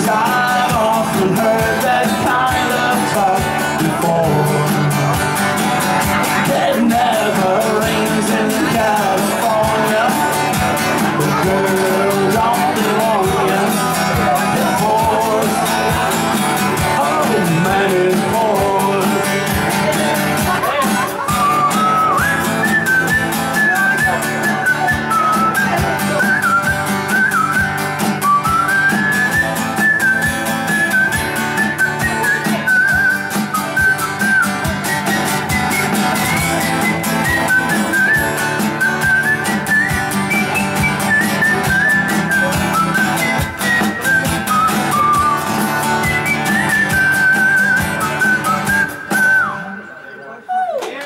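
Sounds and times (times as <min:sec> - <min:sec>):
strummed guitar: 0:00.0 - 0:50.4
whistled melody: 0:21.3 - 0:50.2.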